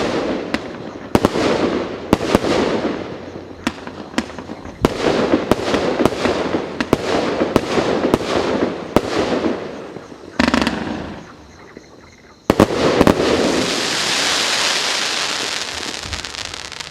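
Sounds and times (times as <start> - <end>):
firework pops with crackling tails: 0.0 - 11.4, 12.5 - 16.9
dense hiss and crackle: 0.0 - 16.9
sharp firework bangs: 12.5 - 16.9.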